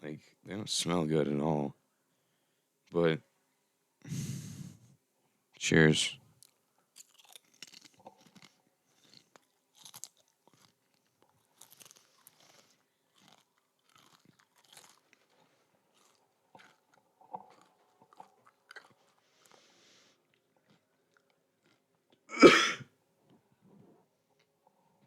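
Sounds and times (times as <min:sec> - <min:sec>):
crunching and chewing chips: 0:06.4 - 0:22.3.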